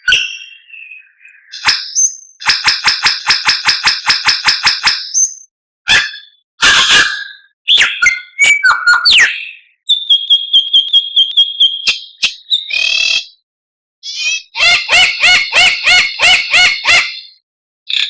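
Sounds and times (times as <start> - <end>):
bird singing whistles and chirps: 0.0 - 2.4, 4.8 - 5.5, 7.0 - 13.4.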